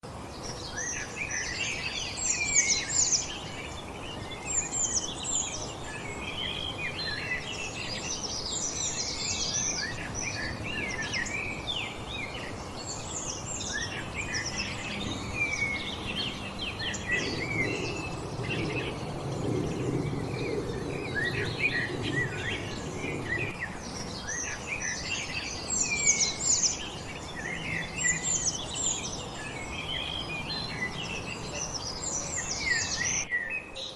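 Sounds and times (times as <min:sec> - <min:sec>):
songbirds singing and chirping: 0:00.0 - 0:33.9
low rumble: 0:17.0 - 0:24.2.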